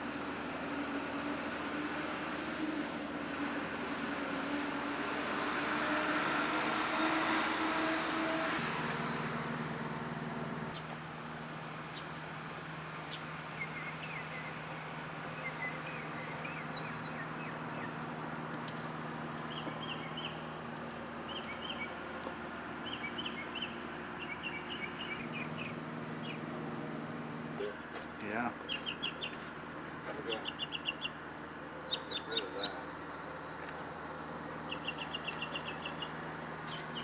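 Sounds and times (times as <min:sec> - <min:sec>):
small birds chirping: 0:09.5 - 0:10.0, 0:10.6 - 0:18.7, 0:19.3 - 0:20.5, 0:21.2 - 0:22.0, 0:22.8 - 0:26.6, 0:27.6 - 0:37.0.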